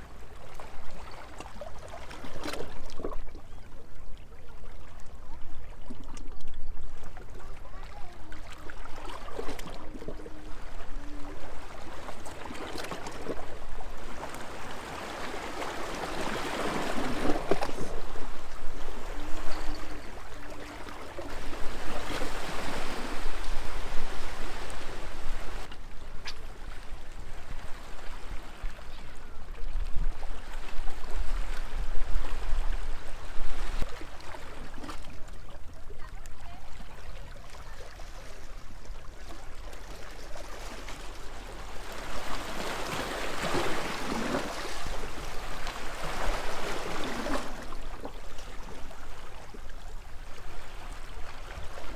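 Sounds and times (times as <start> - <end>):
waves lapping against a seawall: 0.0 - 51.9.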